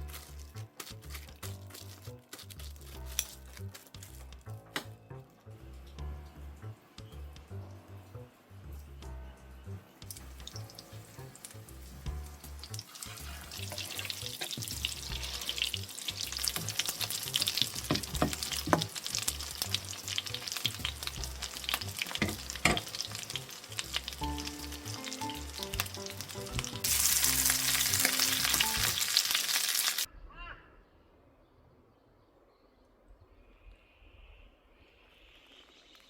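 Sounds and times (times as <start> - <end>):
background music: 0.0 - 30.1
food frying in a pan: 10.0 - 30.1.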